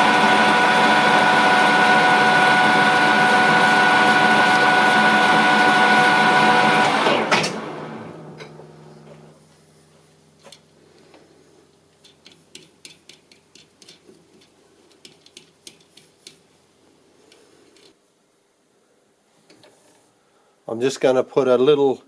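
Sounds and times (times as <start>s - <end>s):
metallic clicks of tools: 12.0s - 16.4s.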